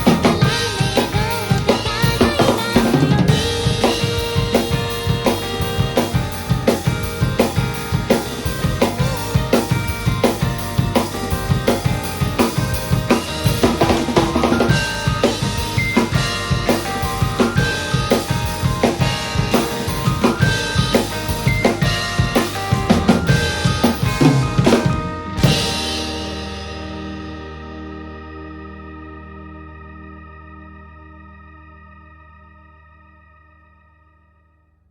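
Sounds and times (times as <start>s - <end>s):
rock drum groove: 0.0s - 27.8s
band recording playing: 0.0s - 33.4s.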